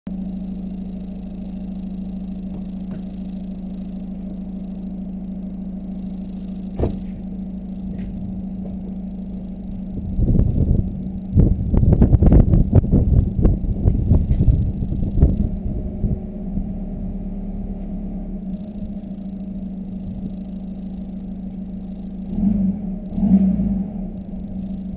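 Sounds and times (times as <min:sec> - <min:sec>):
diesel car engine idling: 0:00.1 - 0:24.9
engine revving: 0:09.6 - 0:24.9.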